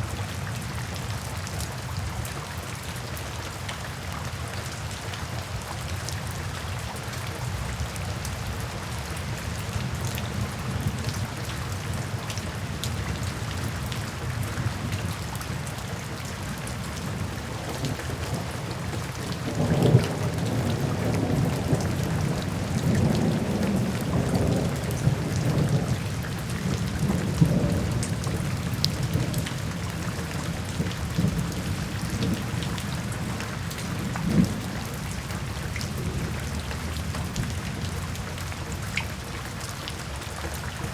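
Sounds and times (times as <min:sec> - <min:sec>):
steady rain: 0:00.0 - 0:40.9
low rumble of thunder: 0:07.6 - 0:39.2.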